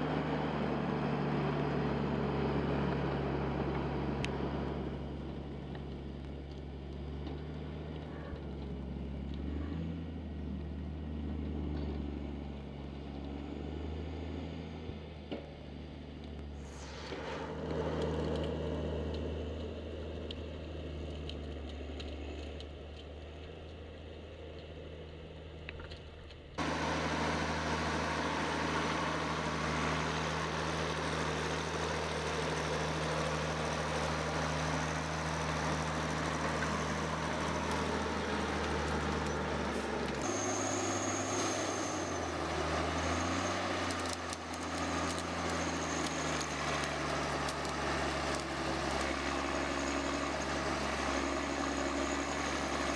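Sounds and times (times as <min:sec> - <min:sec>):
engine running: 0:00.0 - 0:52.9.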